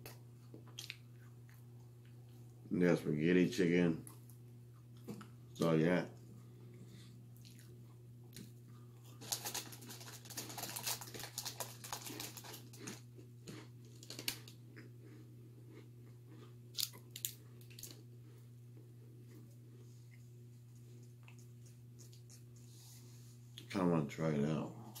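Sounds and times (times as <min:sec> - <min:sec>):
crunchy chewing: 0:00.0 - 0:02.6, 0:06.7 - 0:22.7
low electrical hum: 0:00.0 - 0:25.0.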